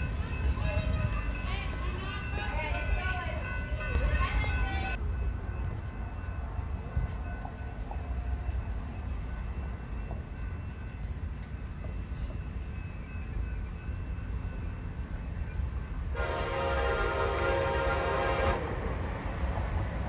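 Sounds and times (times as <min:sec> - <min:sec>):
diesel locomotive rumbling: 0:00.0 - 0:20.0.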